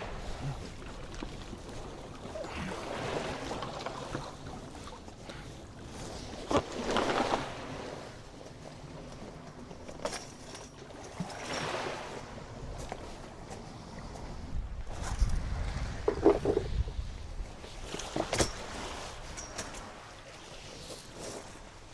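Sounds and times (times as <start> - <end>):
surf washing on beach: 0.0 - 0.8
wind on microphone: 13.8 - 19.4.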